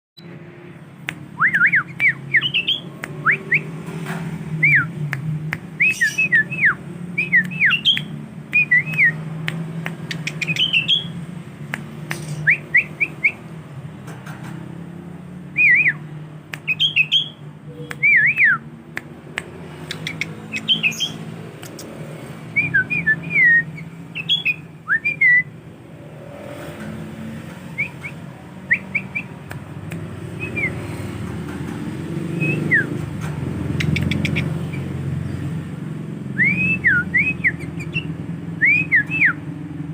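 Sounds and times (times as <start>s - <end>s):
bird singing whistled phrases: 1.4s - 3.7s, 5.8s - 9.2s, 10.2s - 11.1s, 12.4s - 13.4s, 15.6s - 16.0s, 16.6s - 18.6s, 22.6s - 25.5s, 27.8s - 29.3s, 32.4s - 32.9s, 36.4s - 39.4s.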